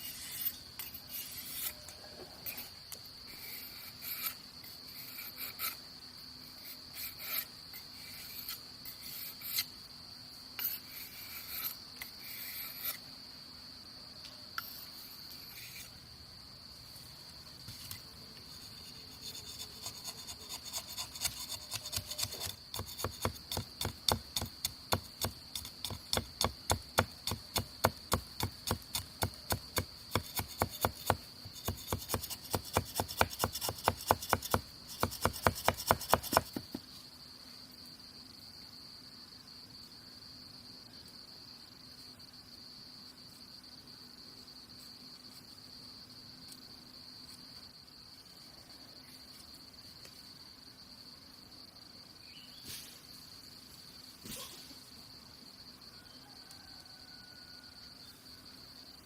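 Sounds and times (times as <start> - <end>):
scraping strokes on wood: 0.0 - 5.9, 6.6 - 9.7, 18.6 - 36.8
insects droning: 0.0 - 59.0.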